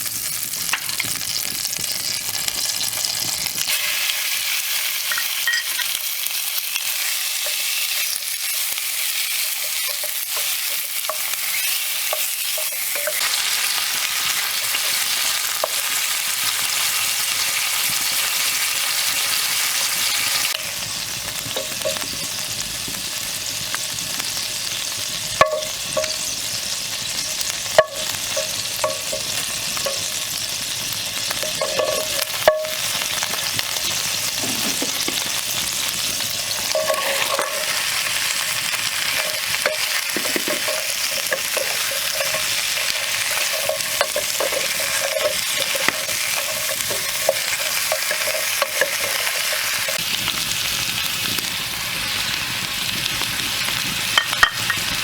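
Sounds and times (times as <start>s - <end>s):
food sizzling in a pan: 0.0s - 55.0s.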